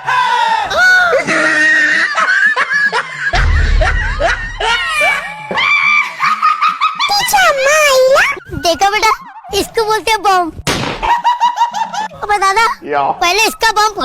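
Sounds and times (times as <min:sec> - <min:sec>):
music with heavy bass: 0:03.4 - 0:05.2.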